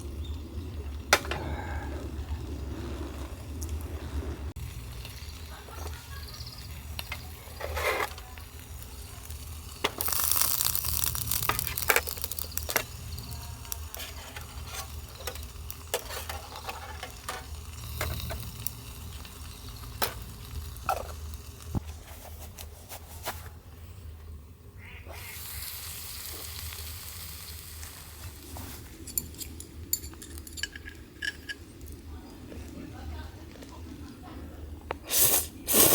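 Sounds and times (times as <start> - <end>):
food sizzling in a pan: 4.5 - 21.8, 25.1 - 29.0.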